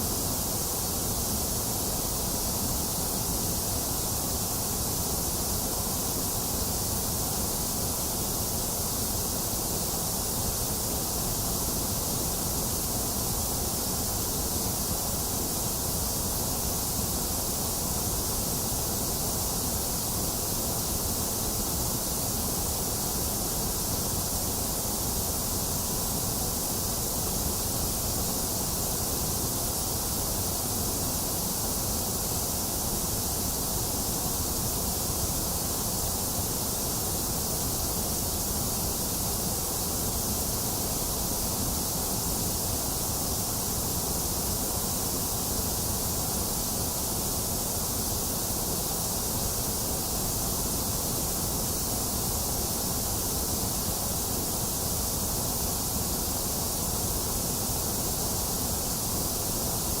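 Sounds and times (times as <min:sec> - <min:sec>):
steady white noise hiss: 0:00.0 - 1:00.0.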